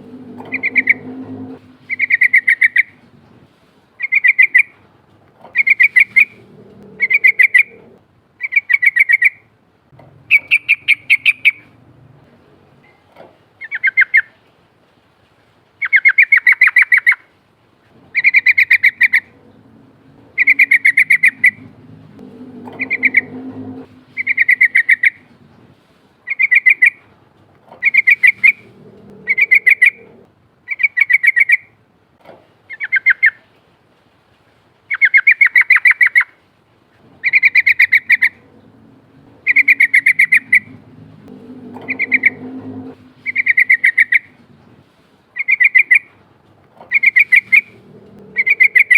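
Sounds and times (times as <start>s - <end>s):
bird singing rattling song: 0.0s - 3.0s, 4.0s - 4.7s, 5.6s - 7.8s, 10.3s - 11.8s, 18.1s - 25.3s, 27.8s - 30.1s, 37.2s - 44.4s, 45.4s - 46.1s, 46.9s - 48.9s
faint low rumble: 0.0s - 13.4s, 17.8s - 30.7s, 36.7s - 48.9s.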